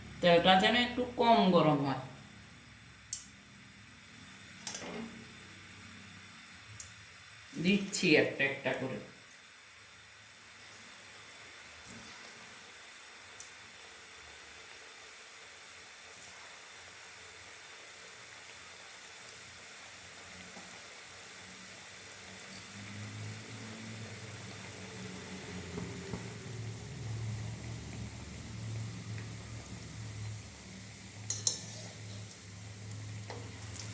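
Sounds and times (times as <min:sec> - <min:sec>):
dumplings sizzling in oil: 0:00.0 - 0:33.9.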